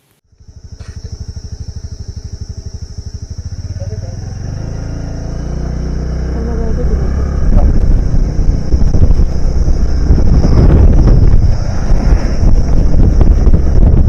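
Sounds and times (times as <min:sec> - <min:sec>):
vehicle engine hum: 0:00.0 - 0:14.0
wind buffeting and road noise: 0:00.4 - 0:14.0.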